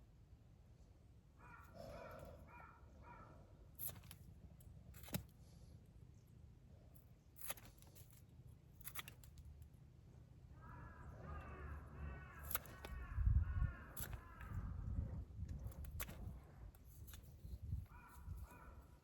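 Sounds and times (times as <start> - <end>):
sharp clicks: 12.3 - 13.1, 13.9 - 14.6.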